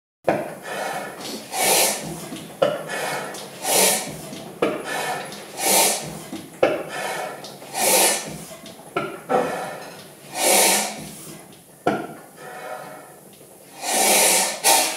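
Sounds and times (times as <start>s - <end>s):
gas engine sharp beats: 0.3s - 11.3s
hissing puffs: 0.6s - 2.3s, 2.9s - 6.3s, 6.9s - 8.5s, 9.3s - 11.4s, 13.7s - 14.9s.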